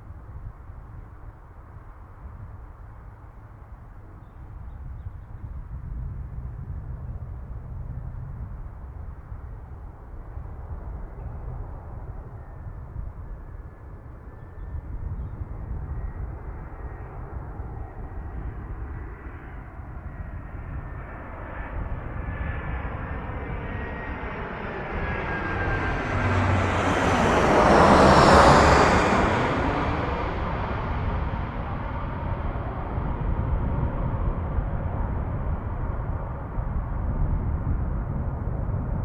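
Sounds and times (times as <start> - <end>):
airliner passing overhead: 9.3 - 39.0
faint engine whine: 15.8 - 39.0.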